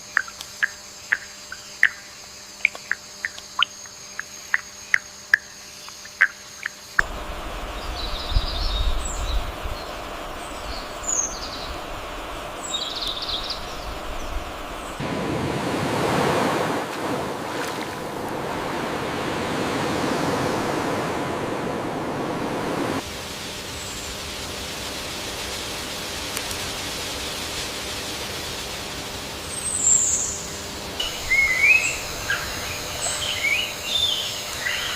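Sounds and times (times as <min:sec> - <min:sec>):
low rumble: 0:07.0 - 0:23.0
steady rushing noise: 0:07.0 - 0:27.6.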